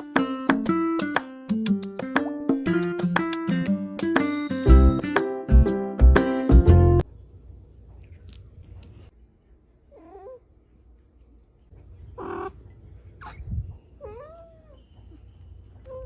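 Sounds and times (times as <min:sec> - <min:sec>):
cat meowing: 0:14.0 - 0:14.8.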